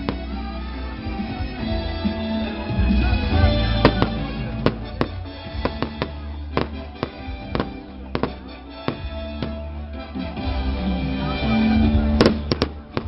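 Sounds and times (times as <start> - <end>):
music with held notes: 0.0 - 13.0
sharp cracks and bangs: 3.8 - 9.6, 12.2 - 13.0.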